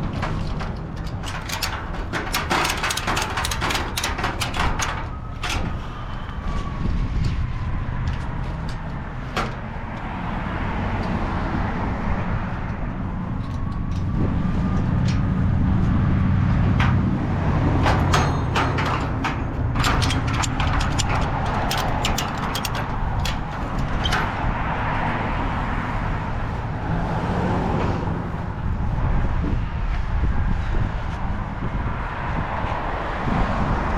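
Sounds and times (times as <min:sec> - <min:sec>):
sharp clicks and knocks: 0:00.0 - 0:05.8, 0:16.7 - 0:24.5
heavy vehicle rumbling: 0:00.0 - 0:33.9.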